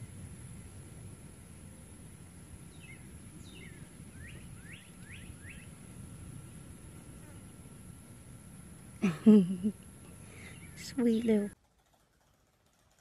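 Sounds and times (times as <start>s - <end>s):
faint outdoor hiss: 0.0s - 13.0s
small bird chirping: 2.7s - 5.8s, 10.2s - 11.6s.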